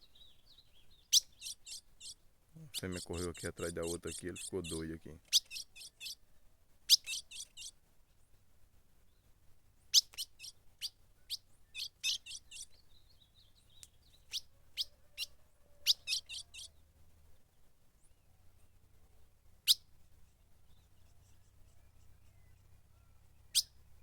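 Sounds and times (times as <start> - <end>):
bird chip calls: 0.2 - 6.2, 6.9 - 7.8, 9.9 - 12.8, 13.4 - 16.8, 19.6 - 19.8, 22.4 - 23.8.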